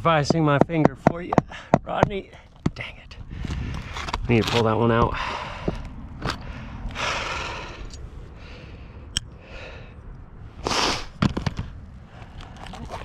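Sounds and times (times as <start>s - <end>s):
nail scraping on shingle: 0.2s - 6.4s, 10.7s - 11.7s.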